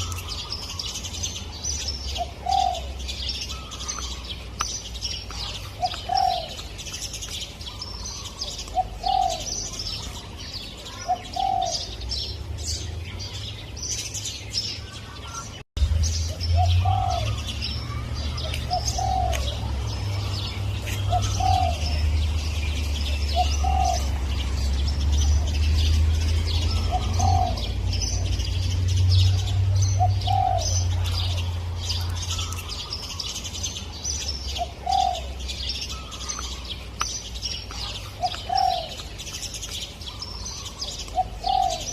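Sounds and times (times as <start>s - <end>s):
small birds chirping: 0.0s - 41.9s
dove cooing: 2.1s - 4.2s, 5.4s - 6.8s, 7.7s - 10.2s, 10.8s - 12.0s, 16.6s - 19.7s, 20.3s - 22.2s, 23.0s - 24.2s, 26.6s - 28.3s, 29.3s - 31.5s, 34.5s - 36.6s, 37.7s - 39.2s, 40.1s - 41.9s.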